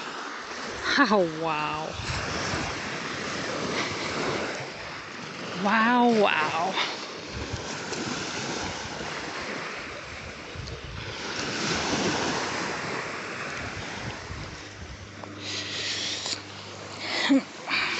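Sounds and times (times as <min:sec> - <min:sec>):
small waves washing on beach: 0:00.0 - 0:17.9
wind buffeting microphone: 0:01.9 - 0:05.6, 0:07.2 - 0:15.4.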